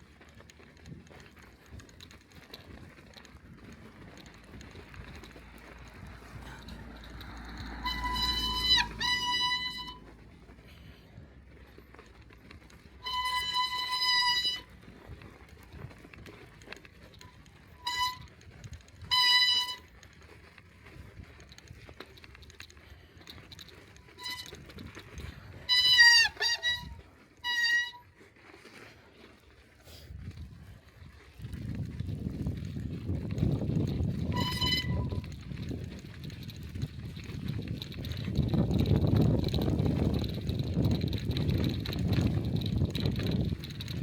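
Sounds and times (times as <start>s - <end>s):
faint road noise: 0.0s - 44.0s
bicycle brakes squealing: 4.0s - 10.9s, 12.6s - 15.2s, 17.3s - 20.3s, 23.3s - 28.8s, 33.2s - 35.9s.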